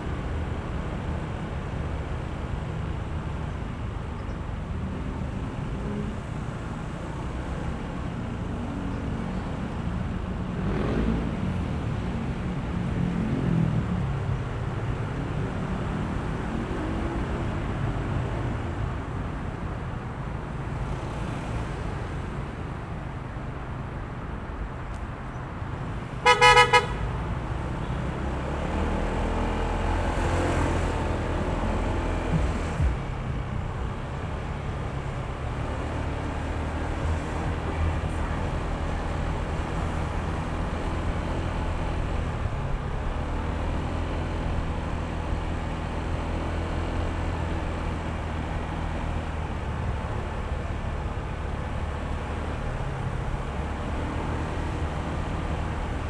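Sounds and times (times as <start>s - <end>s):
road noise: 0.0s - 56.0s
vehicle horn toot: 26.2s - 27.1s.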